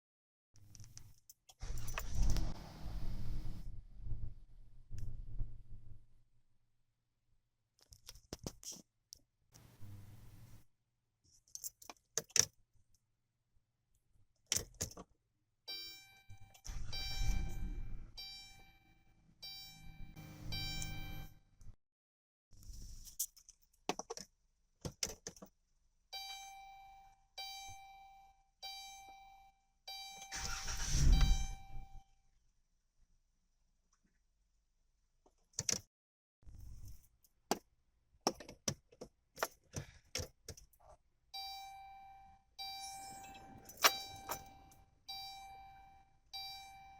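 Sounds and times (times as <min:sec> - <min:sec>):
engine cranking: 0:30.3 - 0:31.2
dashboard chimes: 0:42.6 - 0:45.8.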